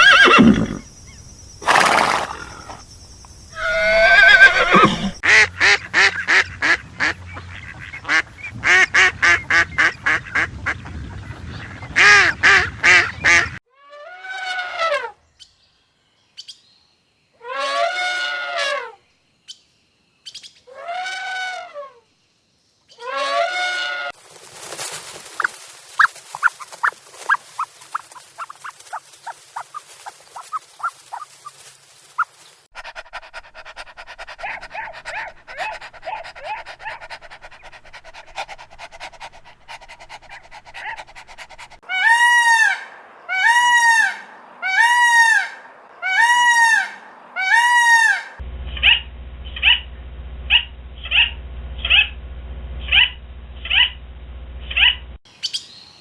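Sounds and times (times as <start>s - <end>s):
arched pitched animal calls: 0.0s - 2.9s, 3.5s - 5.4s, 25.0s - 37.1s, 40.1s - 52.2s, 52.8s - 54.0s, 54.6s - 55.1s
quick short animal calls: 3.5s - 5.2s, 24.5s - 32.9s
animal chirps and clicks: 24.8s - 32.6s
low hum: 48.4s - 55.2s.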